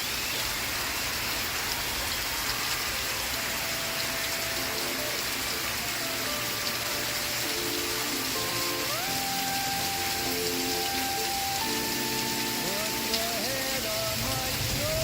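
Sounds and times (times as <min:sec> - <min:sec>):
steady rain falling: 0:00.0 - 0:15.0
faint song: 0:03.0 - 0:15.0.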